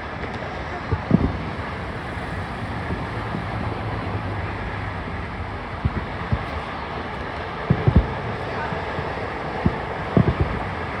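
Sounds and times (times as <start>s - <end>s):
outdoor rumble: 0.0s - 11.0s
wind on microphone: 0.0s - 11.0s
dull low thumps: 1.0s - 6.8s.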